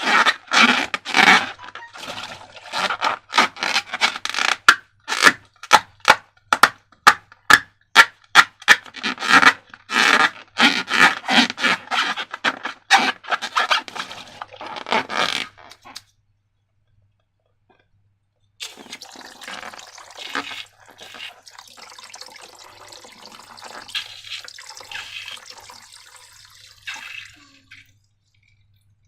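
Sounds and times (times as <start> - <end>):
hands rubbing and scraping slime: 20.2 - 21.4.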